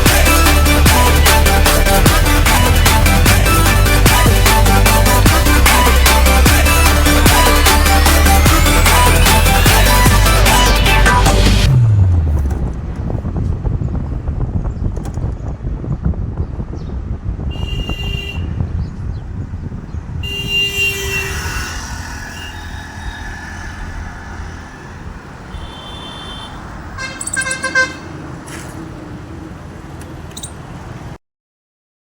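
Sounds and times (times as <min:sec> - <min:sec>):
motorcycle engine and wind rumble: 0:11.7 - 0:31.2
vehicle horns honking: 0:17.5 - 0:18.6, 0:20.2 - 0:28.2.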